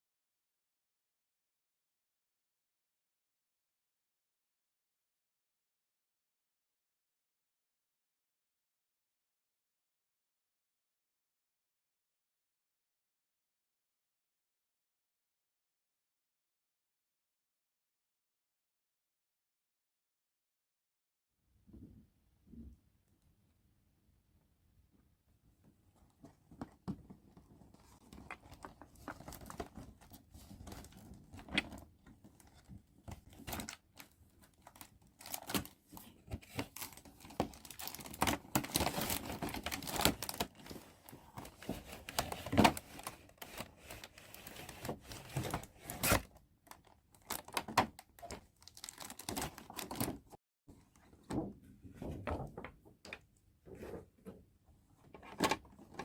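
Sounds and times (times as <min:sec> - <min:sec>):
wrapping crinkling and tearing: 0:33.4 - 0:35.8, 0:36.5 - 0:50.2.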